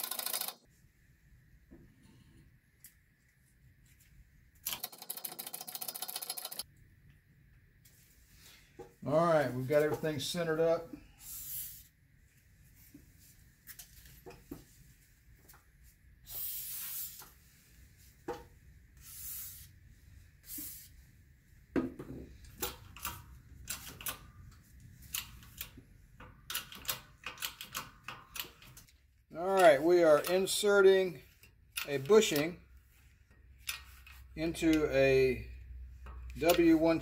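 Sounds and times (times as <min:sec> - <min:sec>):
aerosol spray hisses: 0:16.3 - 0:17.2.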